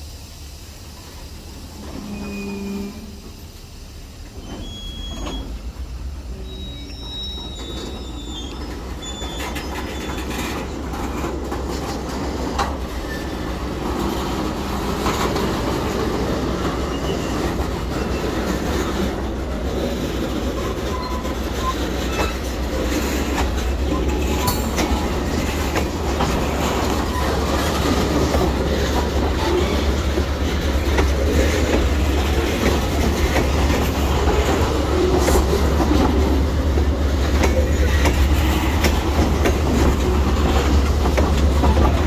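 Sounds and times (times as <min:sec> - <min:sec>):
train wheels rumbling on rail: 0:00.0 - 0:42.0
high wheel squeals: 0:01.8 - 0:03.4, 0:04.2 - 0:11.3, 0:12.9 - 0:13.6, 0:15.1 - 0:19.1, 0:20.3 - 0:36.0.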